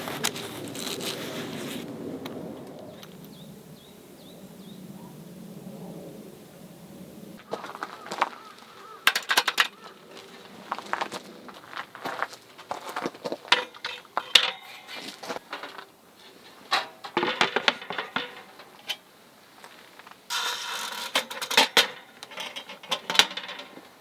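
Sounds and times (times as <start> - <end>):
rustling and scraping: 0.0 - 1.9, 7.4 - 24.0
small hard objects clinking: 8.9 - 10.2, 12.0 - 19.0, 19.7 - 24.0.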